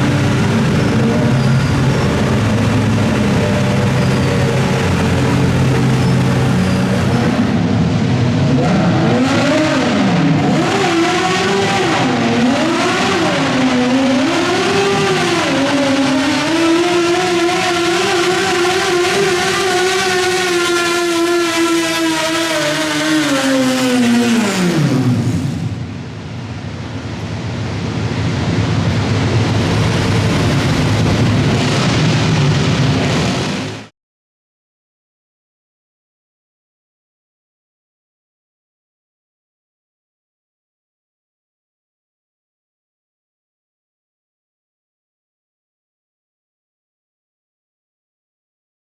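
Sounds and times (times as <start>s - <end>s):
tractor engine straining under load: 0.0s - 7.4s.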